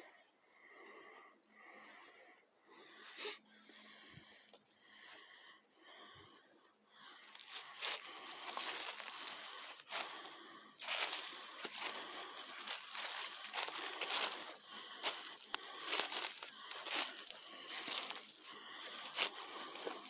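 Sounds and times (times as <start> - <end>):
footsteps crunching through dry leaves: 7.2 - 20.0.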